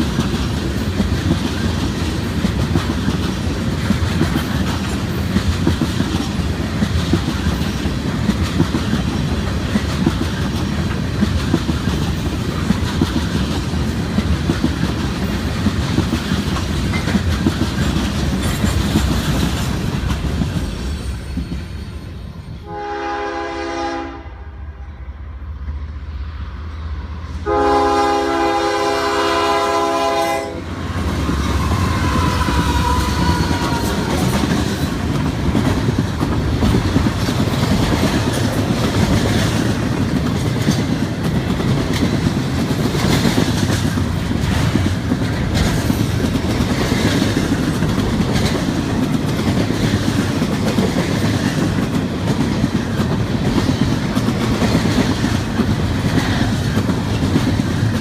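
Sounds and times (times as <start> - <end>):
rail cars rumbling and clattering: 0.0 - 58.0
locomotive air horn: 22.6 - 24.6, 27.4 - 30.8, 31.6 - 34.0.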